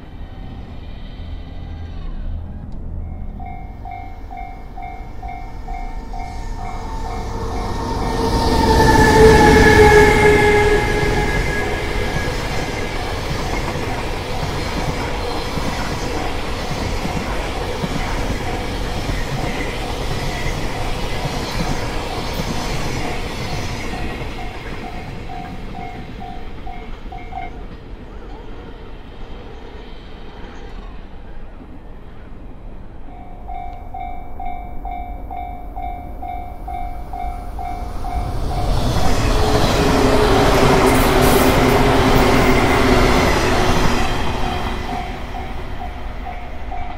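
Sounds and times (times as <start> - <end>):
freight train rumble and clatter: 0.0 - 46.9
second train noise: 0.0 - 46.9
crossing warning bell ringing: 3.0 - 14.9, 23.9 - 27.7, 33.1 - 39.9, 40.5 - 46.9.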